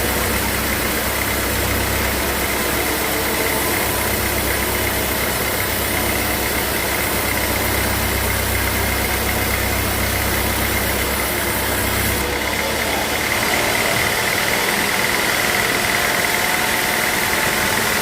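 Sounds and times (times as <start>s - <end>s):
high machine whine: 0.0s - 18.0s
sawmill machinery hum: 0.0s - 18.0s.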